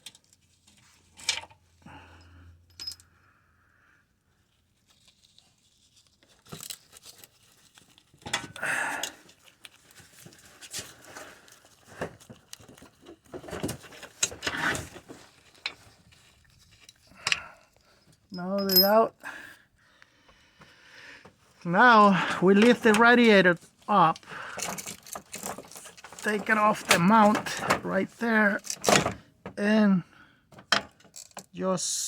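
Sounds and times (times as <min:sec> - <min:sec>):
hand tools clinking on metal: 0:18.3 - 0:19.1, 0:24.0 - 0:29.1.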